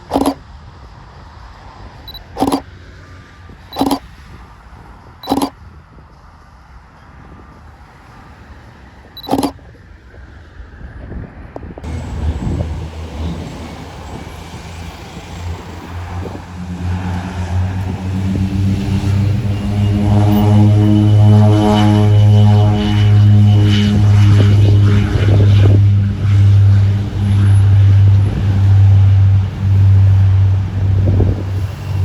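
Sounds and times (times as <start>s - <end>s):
low engine rumble: 11.8s - 32.0s.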